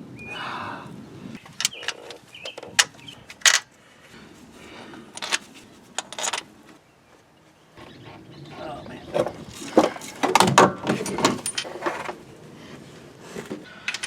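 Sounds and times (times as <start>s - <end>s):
tools clinking on metal: 10.8s - 12.0s.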